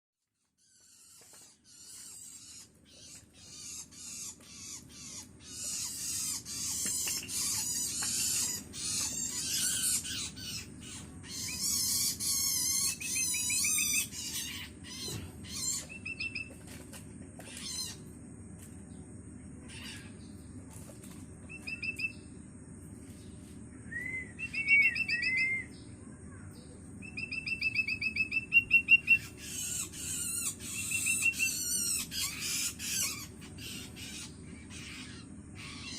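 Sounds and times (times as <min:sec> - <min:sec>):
bird chick harsh begging calls: 0:01.0 - 0:16.5, 0:27.2 - 0:35.9
trilled whistled bird phrases: 0:21.5 - 0:22.2, 0:23.8 - 0:25.9, 0:27.0 - 0:32.7.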